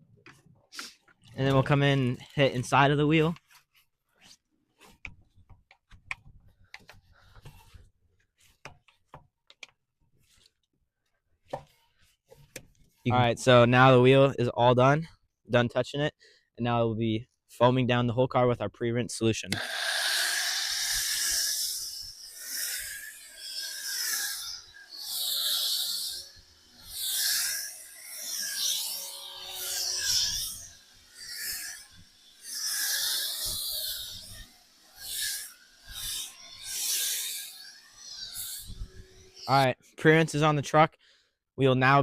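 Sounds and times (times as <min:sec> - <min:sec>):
faint clicks and taps: 0:04.9 - 0:07.9, 0:08.5 - 0:12.8
foam sprayer hissing: 0:19.6 - 0:30.5
brush scrubbing wheel: 0:19.6 - 0:39.6.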